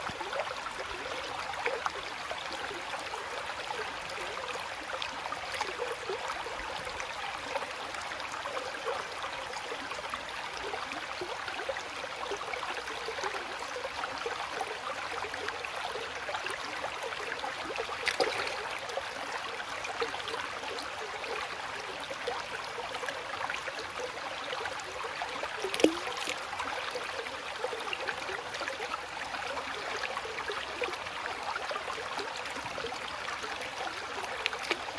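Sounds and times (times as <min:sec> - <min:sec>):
water trickling and babbling: 0:00.0 - 0:34.9
water splashes: 0:17.3 - 0:19.5, 0:24.6 - 0:34.9.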